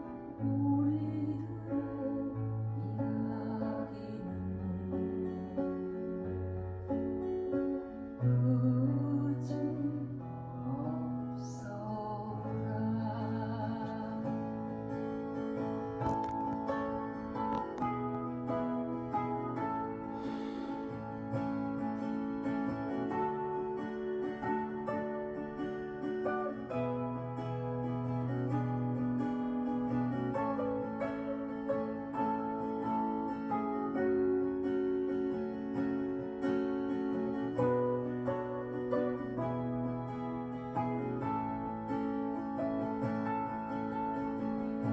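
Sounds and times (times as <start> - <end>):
person singing slow ballad: 0.0 - 6.5, 8.1 - 24.7
acoustic guitar: 0.0 - 44.9.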